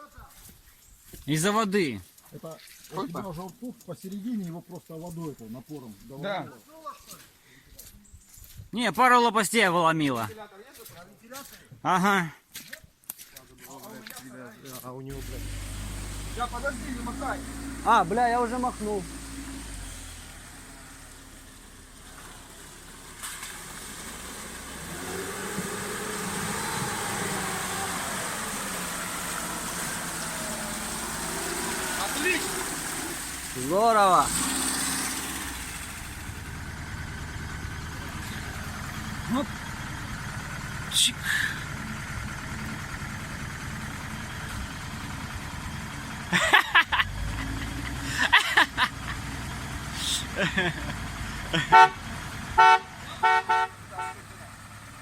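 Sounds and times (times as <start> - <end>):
vehicle engine idling: 15.1 - 55.0
short car horn toots: 51.7 - 52.0, 52.6 - 54.3.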